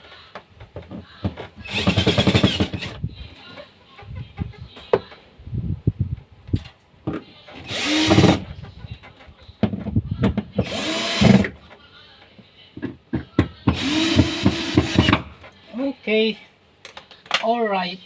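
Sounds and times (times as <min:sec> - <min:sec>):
electric drill whining: 0:01.7 - 0:02.9, 0:07.6 - 0:08.4, 0:10.6 - 0:11.5, 0:13.7 - 0:15.2.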